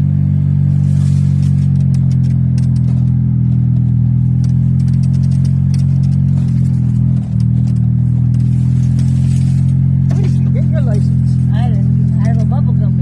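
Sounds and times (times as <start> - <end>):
golf cart engine drone: 0.0 - 13.0
light clicks and rattles: 1.5 - 9.0.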